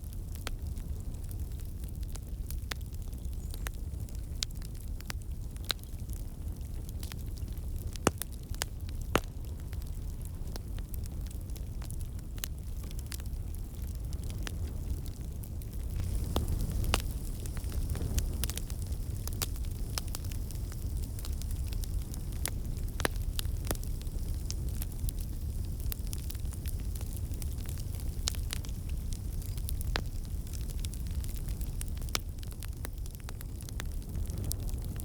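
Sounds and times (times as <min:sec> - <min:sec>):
wood fire crackling: 0:00.0 - 0:35.0.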